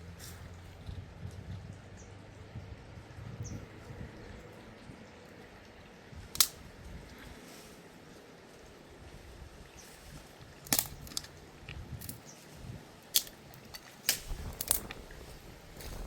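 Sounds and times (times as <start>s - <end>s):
sharp clicks or snaps: 6.3s - 6.6s, 10.6s - 11.3s, 13.1s - 15.0s.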